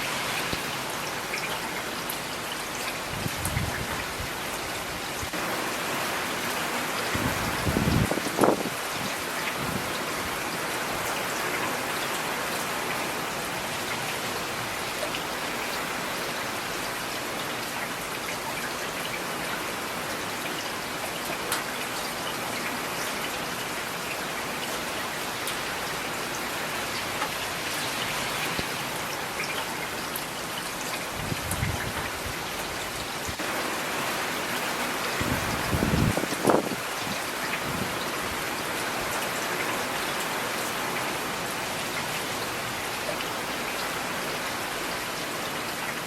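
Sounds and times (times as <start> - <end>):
steady rain: 0.0 - 46.0.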